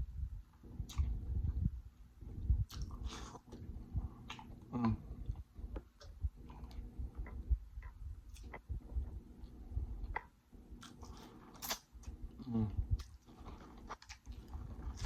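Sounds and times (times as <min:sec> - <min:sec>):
person chewing: 0:00.8 - 0:01.2, 0:02.6 - 0:15.0.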